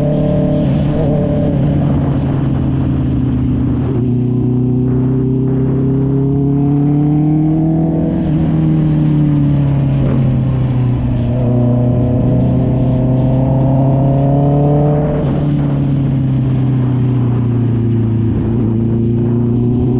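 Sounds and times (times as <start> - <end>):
motorcycle engine accelerating: 0.0 - 19.9.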